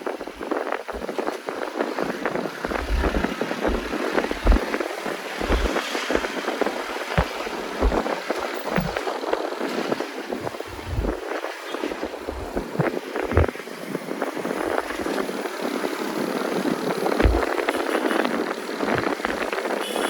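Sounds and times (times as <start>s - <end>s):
wind rush and road noise: 0.0s - 20.0s
low thumps: 2.6s - 9.0s, 10.3s - 11.2s, 12.0s - 13.5s.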